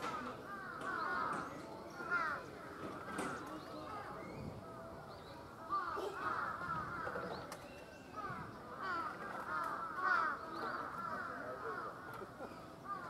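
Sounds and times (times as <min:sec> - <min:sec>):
bird calls chattering: 0:00.0 - 0:13.0
faint voices: 0:00.0 - 0:13.0.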